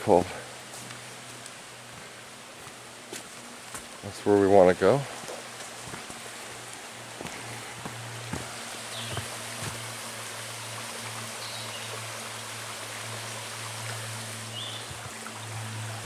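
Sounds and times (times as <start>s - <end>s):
flowing water of brook: 0.0s - 16.0s.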